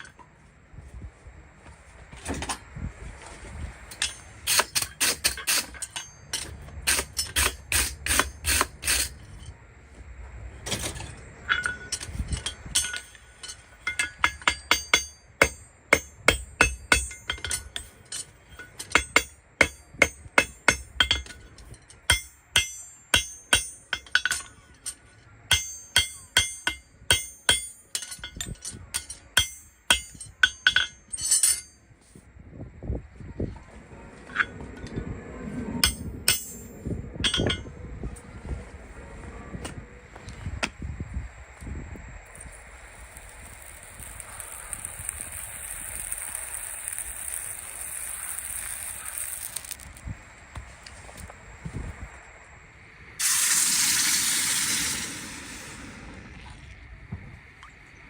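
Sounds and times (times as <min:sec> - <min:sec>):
hammer striking metal: 0:04.0 - 0:09.2, 0:11.5 - 0:31.8, 0:35.8 - 0:37.7.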